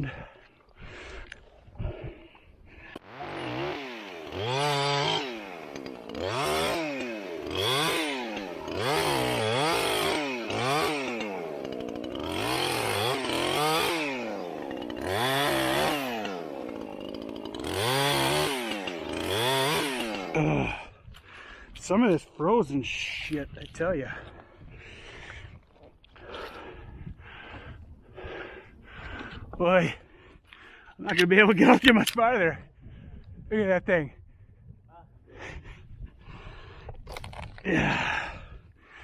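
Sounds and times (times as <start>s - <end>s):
chainsaw revving and cutting wood: 2.9s - 21.0s.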